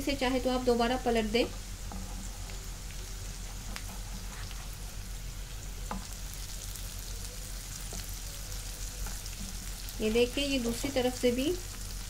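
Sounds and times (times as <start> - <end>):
okra sizzling in oil: 0.0 - 12.0
spatula stirring: 1.5 - 6.5.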